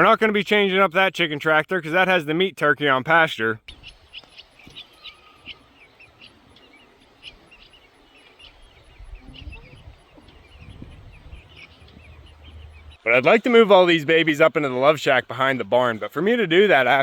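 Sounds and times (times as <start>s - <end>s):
birds chirping: 3.6s - 17.0s
low rumble: 9.1s - 13.0s.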